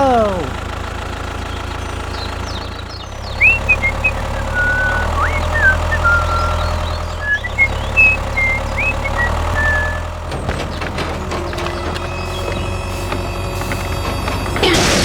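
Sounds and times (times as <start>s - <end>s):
short high chirps: 3.4s - 10.0s.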